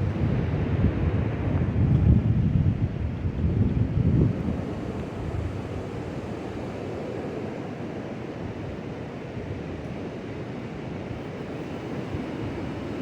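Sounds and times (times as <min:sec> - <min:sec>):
strong wind rushing: 0:00.0 - 0:06.2
wind buffeting microphone: 0:00.0 - 0:13.0.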